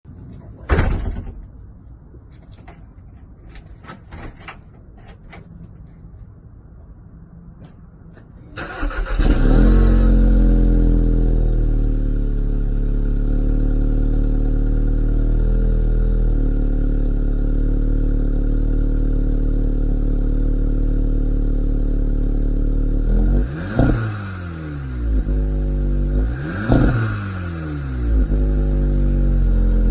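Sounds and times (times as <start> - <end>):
car engine starting and idling: 7.6 - 29.9.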